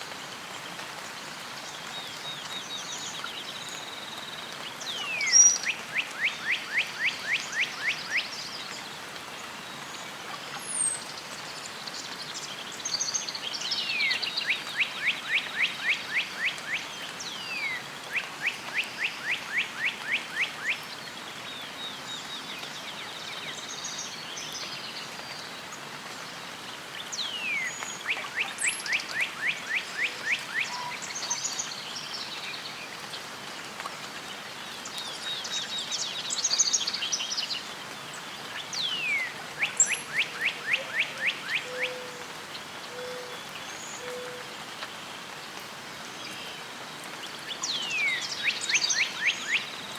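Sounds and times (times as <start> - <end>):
steady outdoor hiss: 0.0 - 49.9
songbird trilling: 38.8 - 42.1.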